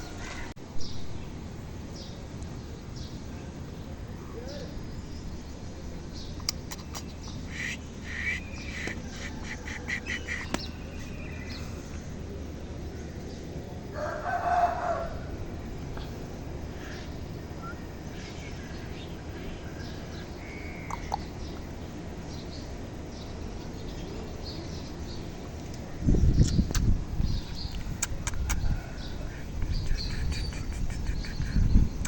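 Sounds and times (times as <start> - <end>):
birds chirping: 2.0 - 32.0
rooster crowing: 13.9 - 15.4, 28.6 - 29.3.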